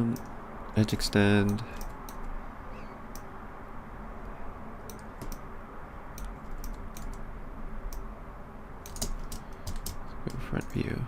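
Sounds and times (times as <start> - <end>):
steady low hum: 0.0 - 11.0
keyboard and mouse clicks: 1.4 - 2.3, 4.8 - 5.4, 6.2 - 7.2, 8.8 - 10.8.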